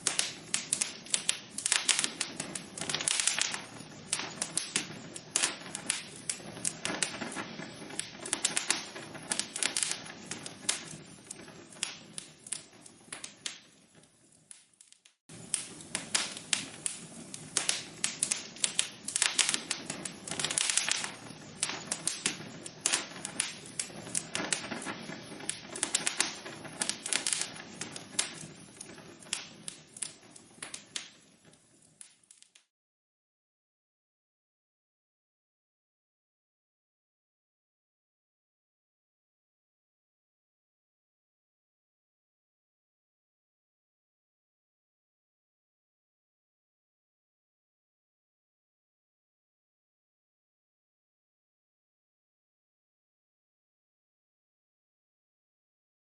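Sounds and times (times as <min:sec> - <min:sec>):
logs crackling in a fireplace: 0:00.0 - 0:32.7.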